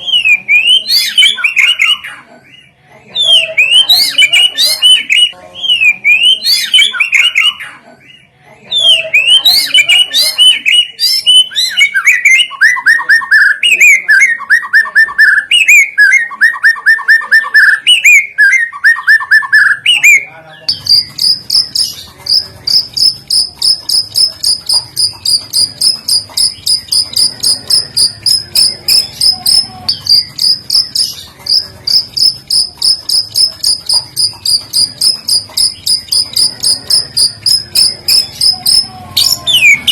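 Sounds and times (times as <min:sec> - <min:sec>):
songbirds singing whistled phrases: 0:00.0 - 0:07.8, 0:08.7 - 0:39.9
high repeated chirp: 0:08.8 - 0:39.9.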